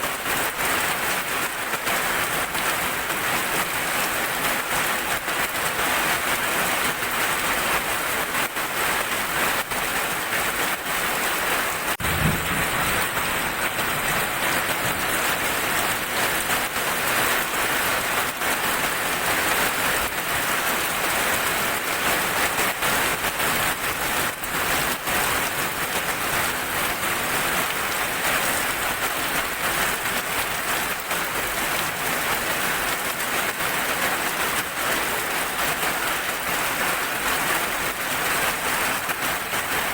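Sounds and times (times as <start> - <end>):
steady rain falling: 0.0 - 39.9
low thump: 12.0 - 13.1.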